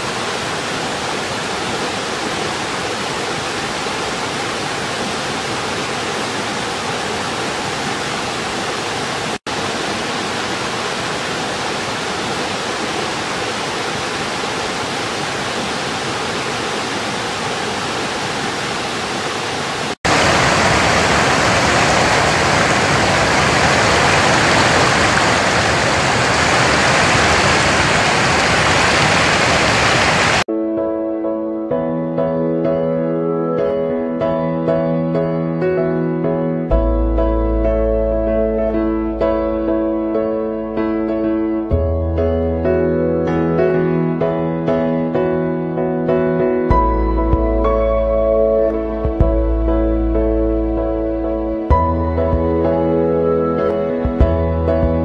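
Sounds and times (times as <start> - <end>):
rocky stream rushing: 0.0 - 30.5.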